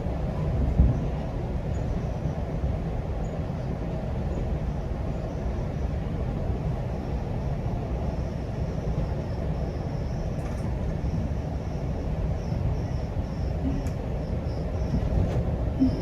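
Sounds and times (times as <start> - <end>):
train wheels rolling on track: 0.0 - 16.0.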